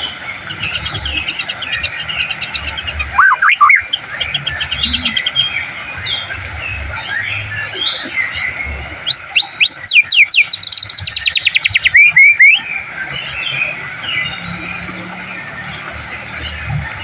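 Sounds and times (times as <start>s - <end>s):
soft bird chirping: 0.0s - 17.0s
bird singing whistled phrase: 3.1s - 4.0s, 9.1s - 12.6s.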